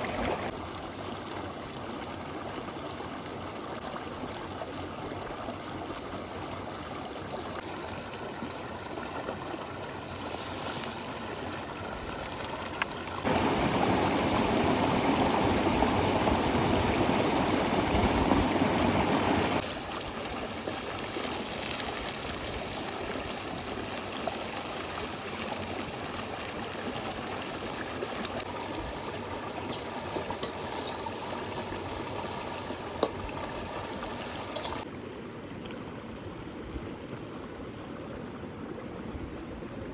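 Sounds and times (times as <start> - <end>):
river rushing: 13.2 - 19.6.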